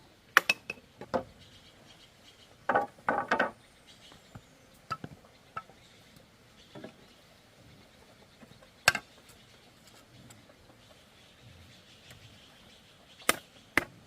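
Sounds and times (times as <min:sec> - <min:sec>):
bamboo knocks and clicks: 0:02.7 - 0:03.6.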